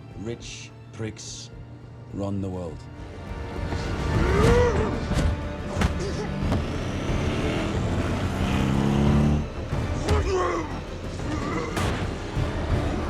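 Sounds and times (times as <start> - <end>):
film score music: 0.0 - 13.0
car engine noise: 5.0 - 10.1.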